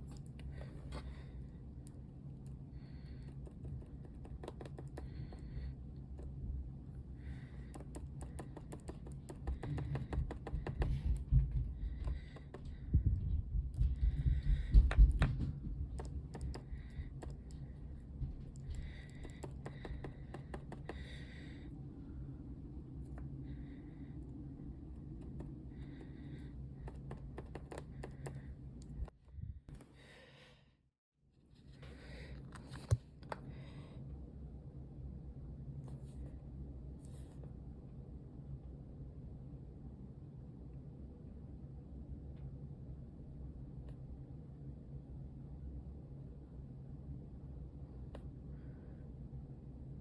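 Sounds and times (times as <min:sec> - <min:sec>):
steady low hum: 0:00.0 - 0:50.0
rapid small clicks and taps: 0:01.8 - 0:06.4, 0:07.4 - 0:12.8, 0:13.7 - 0:21.2, 0:24.3 - 0:29.1.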